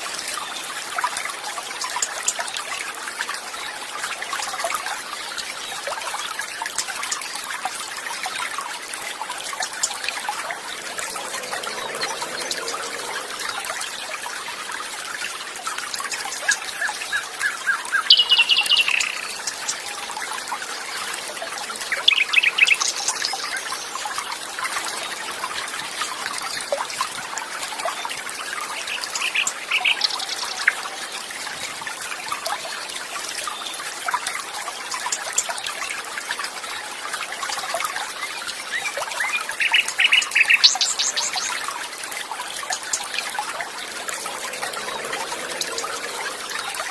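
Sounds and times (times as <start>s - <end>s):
water trickling: 0.0s - 46.9s
songbirds chirping: 9.6s - 14.8s, 16.3s - 24.5s.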